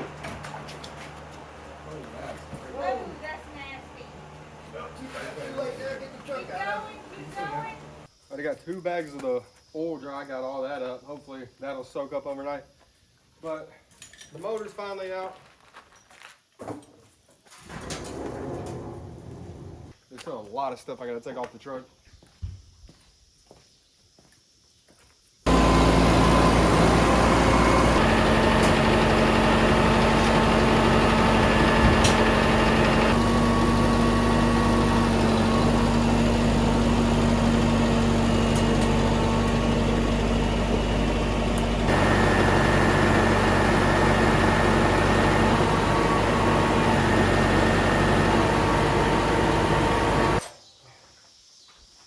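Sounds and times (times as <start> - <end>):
loud motor hum: 0.0 - 8.1, 25.5 - 50.4.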